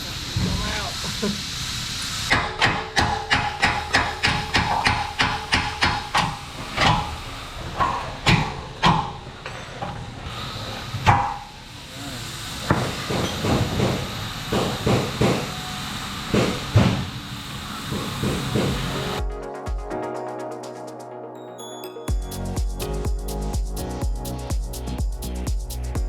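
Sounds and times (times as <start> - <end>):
hammer striking metal: 2.3 - 7.2.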